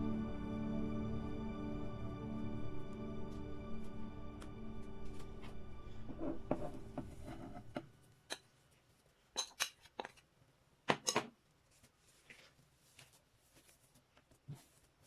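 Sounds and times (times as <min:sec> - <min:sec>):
background music: 0:00.0 - 0:08.2.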